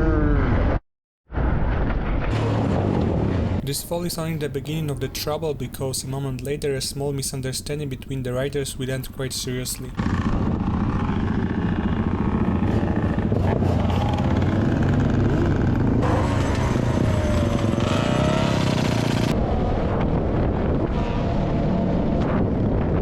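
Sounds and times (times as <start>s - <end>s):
motorcycle engine running: 10.0s - 19.4s.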